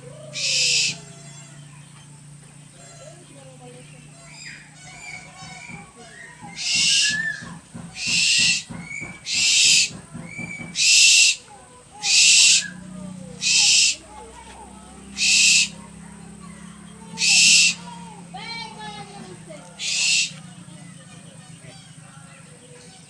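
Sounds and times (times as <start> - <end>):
owl hissing screeches: 0.3 - 1.0, 6.6 - 7.4, 8.0 - 9.9, 10.7 - 11.4, 12.0 - 12.8, 13.4 - 14.1, 15.2 - 15.8, 17.2 - 18.0, 19.8 - 20.4.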